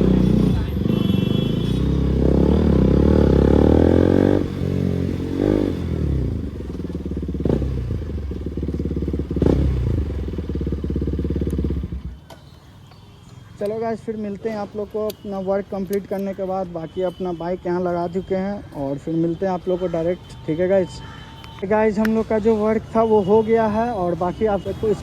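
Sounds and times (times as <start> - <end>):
motorcycle engine revving and idling: 0.0 - 12.2.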